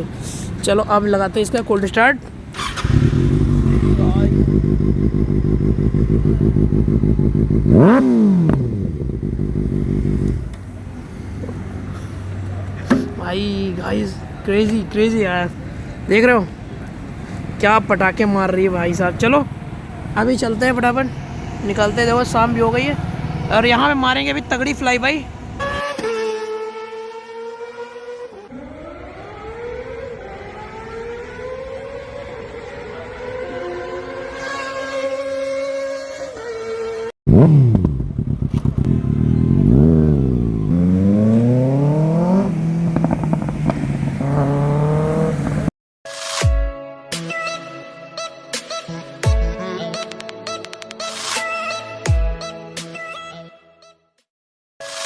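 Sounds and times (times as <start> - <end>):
engine revving: 2.6 - 10.8, 20.5 - 24.6, 37.3 - 45.7
motorcycle engine idling: 2.6 - 11.1, 37.7 - 40.8
exhaust pop: 12.8 - 13.3, 37.3 - 45.7.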